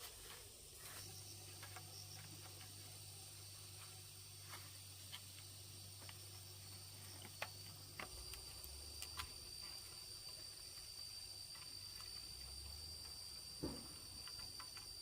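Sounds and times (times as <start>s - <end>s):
insects droning: 0.0s - 15.0s
low thump: 13.6s - 14.0s.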